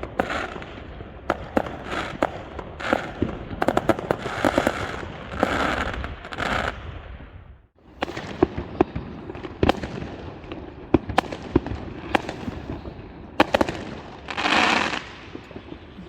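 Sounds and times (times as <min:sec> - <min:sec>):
fireworks bangs and pops: 0:00.0 - 0:16.0.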